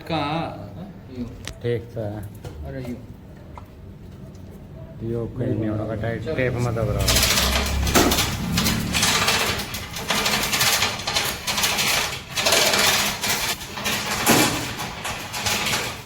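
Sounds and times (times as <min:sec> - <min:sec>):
chain hoist chain rattling: 0:06.6 - 0:16.0.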